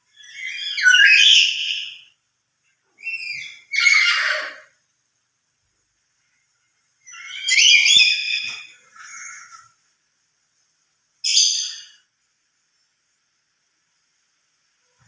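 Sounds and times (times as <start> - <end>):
parrot shrill calls: 0.2 - 2.1, 3.0 - 4.7, 7.1 - 9.6, 11.2 - 12.0.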